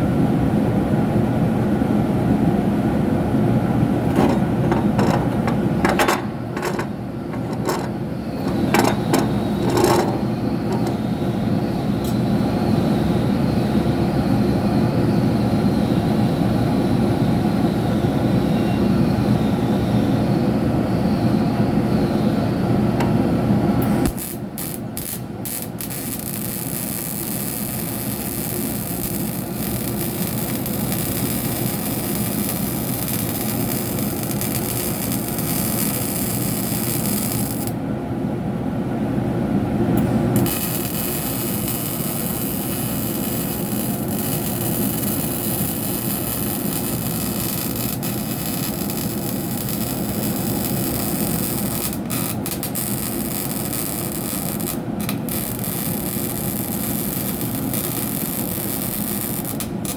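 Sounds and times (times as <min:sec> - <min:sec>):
welder arc crackling hiss: 0:06.6 - 0:13.2, 0:23.8 - 0:37.8, 0:40.0 - 0:59.9.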